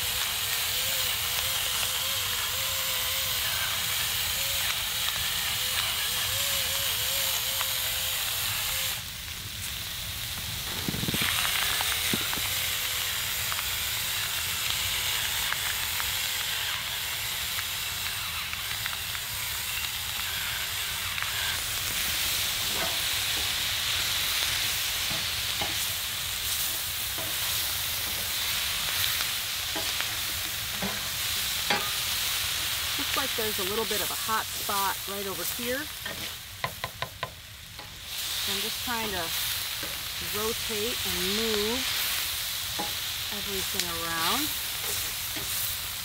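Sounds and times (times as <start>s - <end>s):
vegetables sizzling in skillet: 0.0s - 46.0s
spatula scraping pan: 19.8s - 45.8s.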